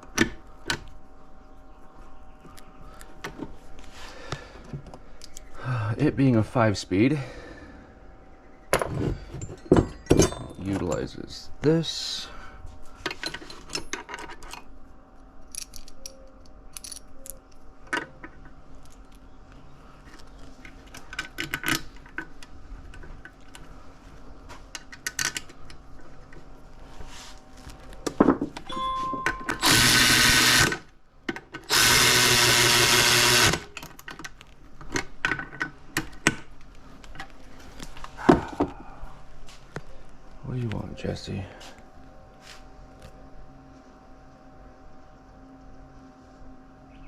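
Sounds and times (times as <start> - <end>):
metal tools clinking: 8.8 - 11.4
power tool bursts: 29.5 - 30.8, 31.7 - 33.7.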